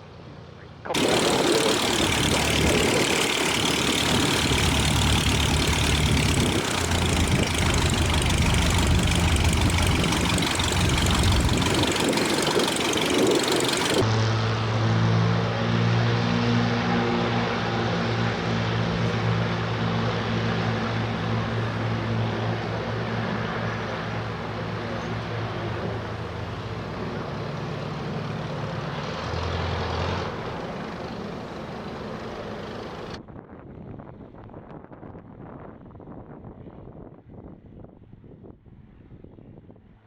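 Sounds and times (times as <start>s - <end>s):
wind noise on microphone: 0.9s - 14.0s
propeller aircraft engine humming: 0.9s - 14.5s, 16.7s - 33.2s.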